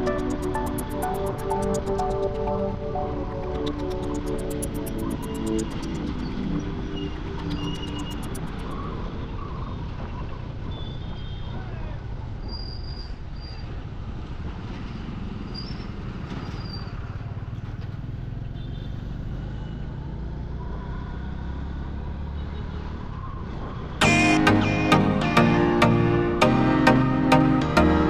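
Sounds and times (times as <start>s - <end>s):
short high-pitched beeps: 0.0s - 8.6s
surrounding traffic: 0.0s - 28.0s.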